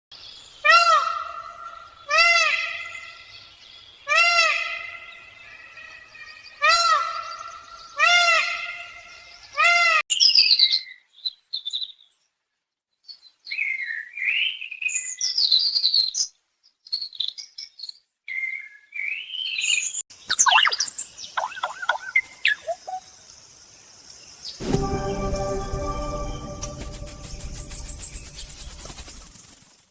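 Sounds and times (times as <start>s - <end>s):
music: 24.6s - 29.1s
songbird chirps and whistles: 24.6s - 29.9s.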